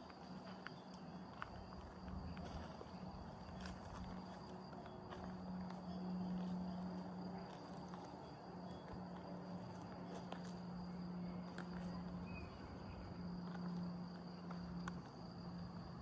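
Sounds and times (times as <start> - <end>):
crickets trilling: 0.1 - 16.0
footsteps crunching on a path: 0.2 - 8.2.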